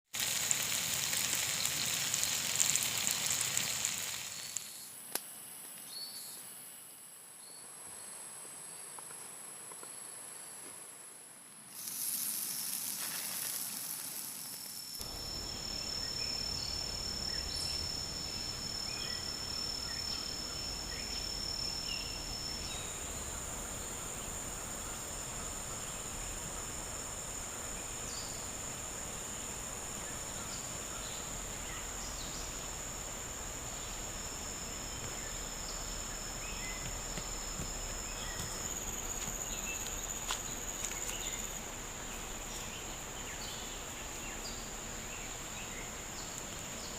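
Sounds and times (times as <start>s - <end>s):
forest ambience hiss: 0.1s - 46.9s
high-pitched insect drones: 0.2s - 5.0s, 11.7s - 46.9s
faint chirps: 11.7s - 46.9s.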